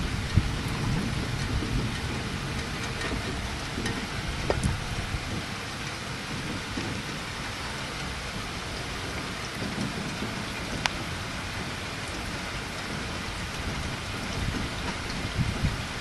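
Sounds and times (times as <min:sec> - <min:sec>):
low rumble: 0:00.0 - 0:16.0
steady rain falling: 0:00.0 - 0:16.0.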